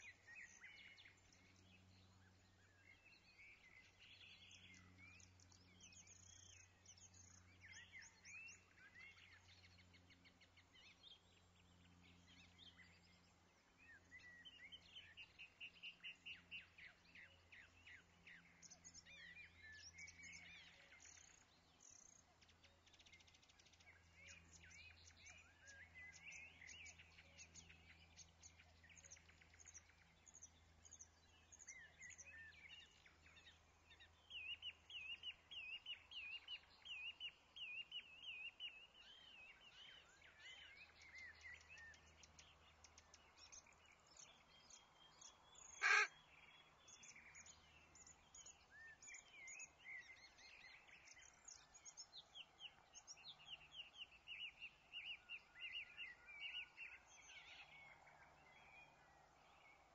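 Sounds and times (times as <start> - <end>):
birds chirping: 38.5 - 57.9.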